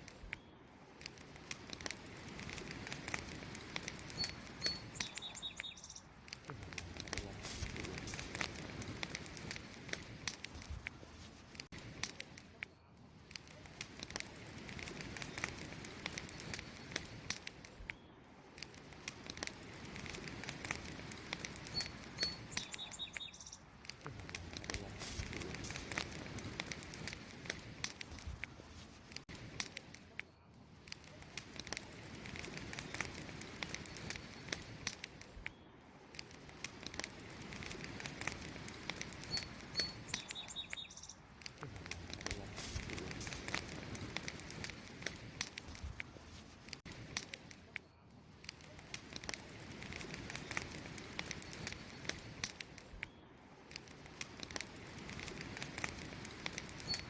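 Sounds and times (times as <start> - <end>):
wood fire crackling and popping: 0.0 - 57.0
short bird chirps: 4.1 - 6.1, 21.7 - 23.7, 39.2 - 41.2.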